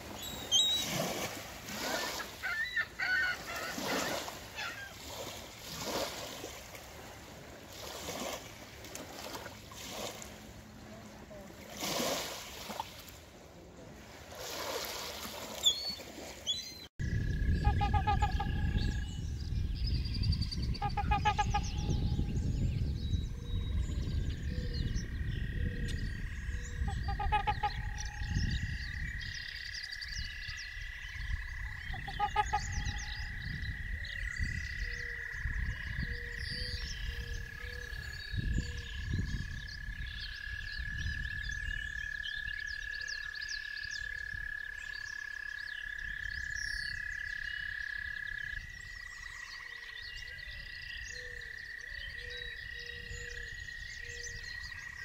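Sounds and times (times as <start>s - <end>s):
frogs croaking: 17.0s - 19.2s, 20.6s - 55.0s
frogs trilling: 17.0s - 19.2s, 23.3s - 55.0s.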